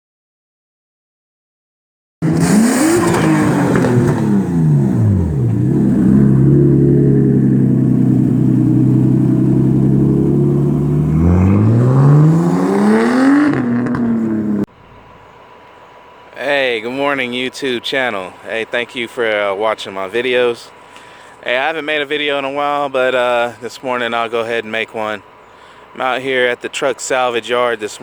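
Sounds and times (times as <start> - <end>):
vehicle engine running: 2.2 - 28.0.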